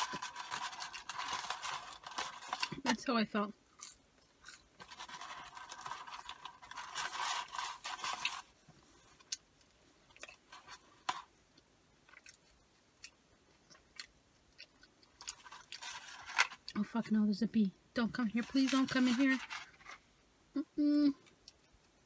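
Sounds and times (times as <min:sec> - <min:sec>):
person chewing crunchy food: 0:03.7 - 0:08.4, 0:11.5 - 0:16.8.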